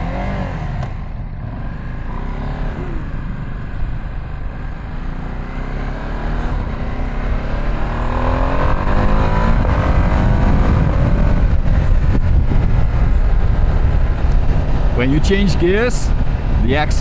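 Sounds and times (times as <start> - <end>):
motorcycle engine accelerating: 0.0 - 17.0
wind rushing over microphone: 5.7 - 17.0.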